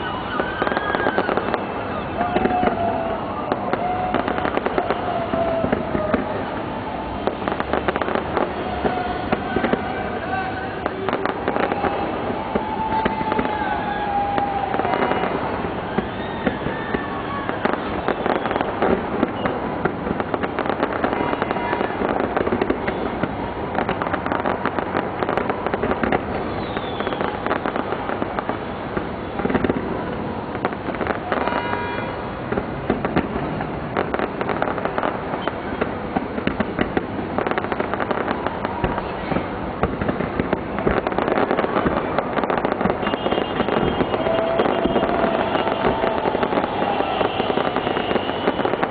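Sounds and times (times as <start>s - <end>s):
firework whistles: 0.0s - 29.8s, 30.5s - 33.4s, 34.0s - 48.9s
crowd voices: 0.0s - 48.9s
fireworks bangs and crackles: 0.0s - 48.9s.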